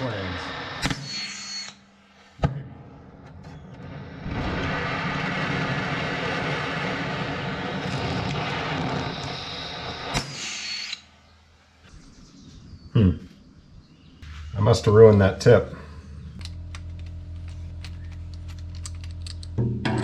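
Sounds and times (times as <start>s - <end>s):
cutting torch hissing: 0.0s - 2.4s, 3.6s - 11.3s.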